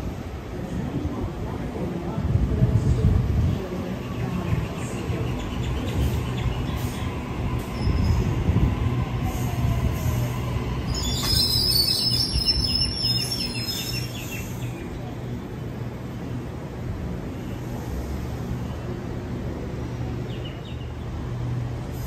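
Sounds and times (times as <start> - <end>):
train wheels rumbling on rails: 0.0 - 22.0
high metallic brake squeal: 10.9 - 14.4.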